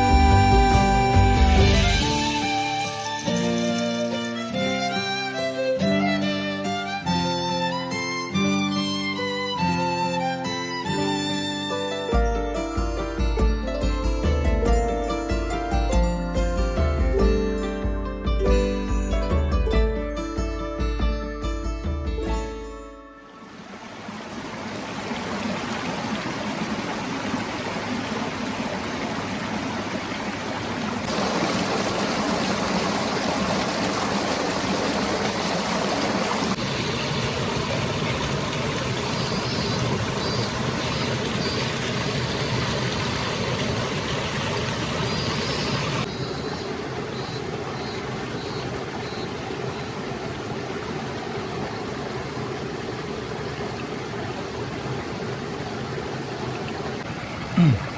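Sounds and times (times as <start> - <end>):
mountain stream rushing: 23.3 - 57.9.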